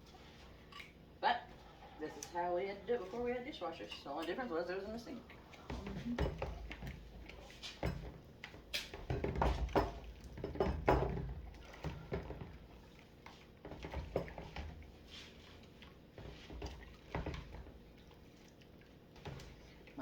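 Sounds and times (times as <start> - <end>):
water sloshing: 1.6 - 20.0
dishes clattering: 5.7 - 12.5.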